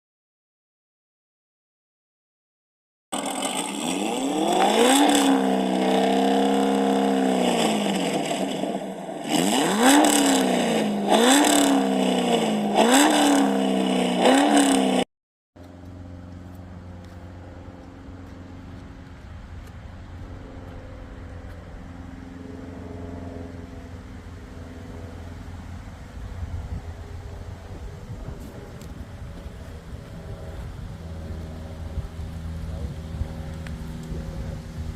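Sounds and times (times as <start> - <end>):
car engine revving: 3.2 - 15.0
car engine idling: 15.6 - 34.9.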